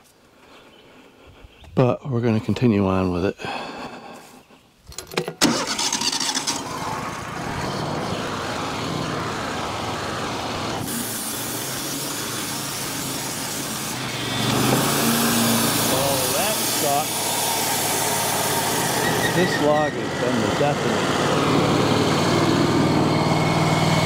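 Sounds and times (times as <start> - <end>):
sawmill engine running: 5.4 - 24.0.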